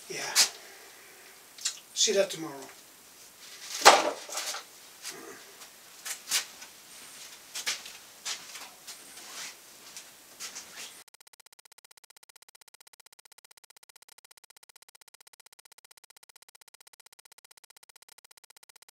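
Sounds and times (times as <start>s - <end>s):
plastic bags rustling: 3.4s - 10.7s
fast pulsing buzz: 11.0s - 18.9s.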